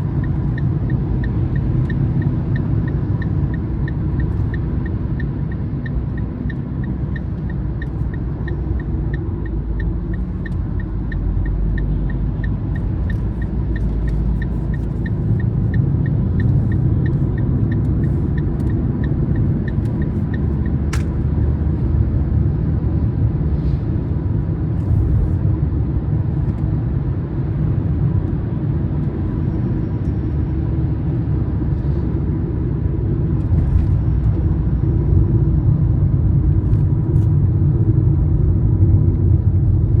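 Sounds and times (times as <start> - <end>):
light regular ticking: 0.0 - 21.1
car road and engine rumble: 0.0 - 40.0.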